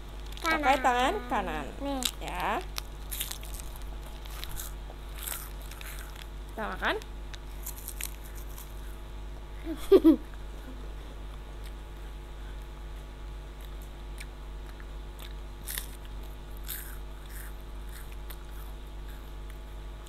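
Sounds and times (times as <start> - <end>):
steady low hum: 0.0 - 20.0
crunchy snack bar chewing: 1.9 - 6.3, 7.3 - 9.0, 13.6 - 19.7.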